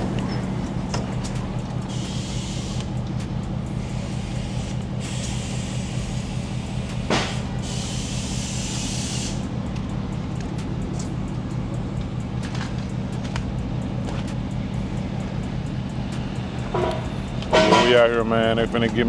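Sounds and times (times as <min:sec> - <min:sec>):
vehicle engine humming: 0:00.0 - 0:19.0
compressed air hiss: 0:01.9 - 0:03.0, 0:03.8 - 0:09.6.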